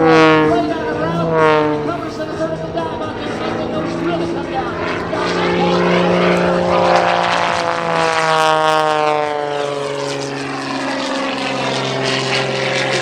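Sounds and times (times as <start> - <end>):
propeller airplane passing by: 0.0 - 13.0.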